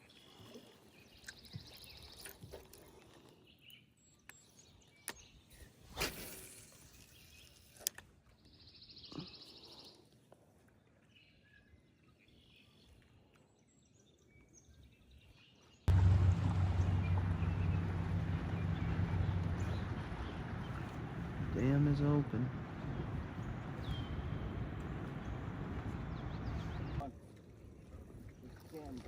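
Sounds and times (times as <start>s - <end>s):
boat motor drone: 15.9s - 27.0s
trilled bird calls: 16.1s - 21.8s, 22.6s - 27.0s.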